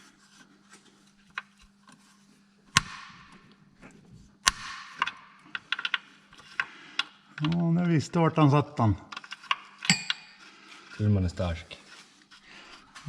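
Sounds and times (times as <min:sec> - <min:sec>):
metal tools clinking: 0:09.8 - 0:10.4.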